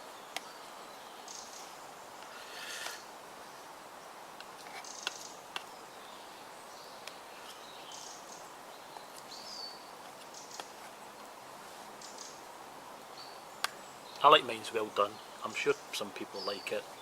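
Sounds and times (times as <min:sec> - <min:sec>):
steady hiss: 0:00.0 - 0:17.0
bird chirps: 0:04.8 - 0:10.7, 0:12.0 - 0:12.4, 0:13.1 - 0:17.0.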